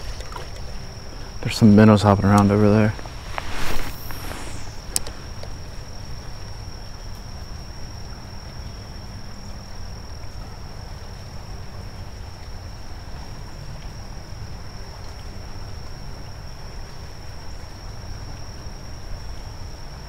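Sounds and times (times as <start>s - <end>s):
low steady rumble: 2.2s - 5.4s.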